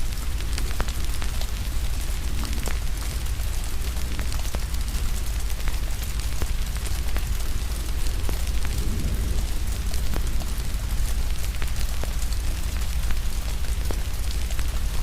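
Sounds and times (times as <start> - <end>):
crackling wood fire: 0.0 - 15.0
rain hissing: 0.0 - 15.0
low rumble: 7.2 - 12.2.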